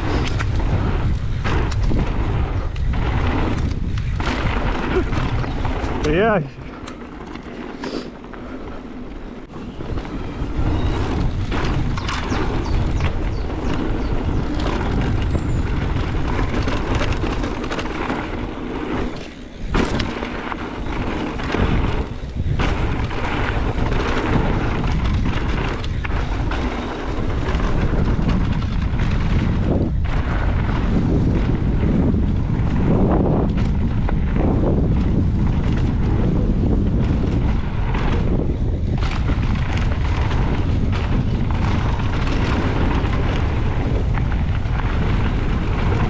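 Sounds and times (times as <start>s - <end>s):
wind rushing over microphone: 0.0s - 46.0s
bike clicks and knocks: 6.6s - 30.4s.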